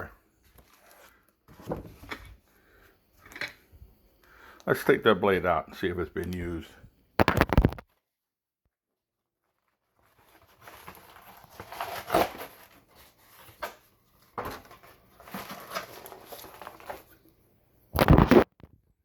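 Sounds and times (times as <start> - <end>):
rustling and scraping handling noise: 0.0 - 3.8, 9.4 - 17.4.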